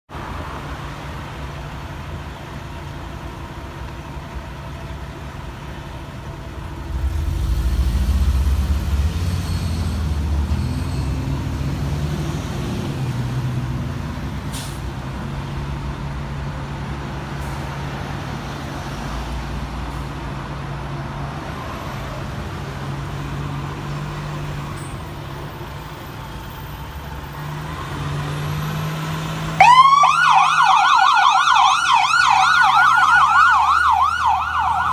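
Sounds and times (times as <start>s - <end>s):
diesel engine running: 1.0s - 17.7s
siren wailing: 29.6s - 34.9s.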